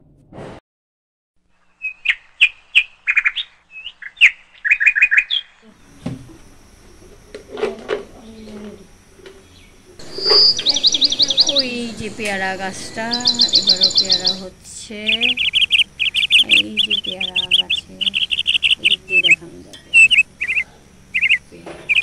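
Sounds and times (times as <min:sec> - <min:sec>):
small birds chirping: 0:01.5 - 0:22.0
bird trill: 0:01.6 - 0:06.1, 0:09.4 - 0:22.0.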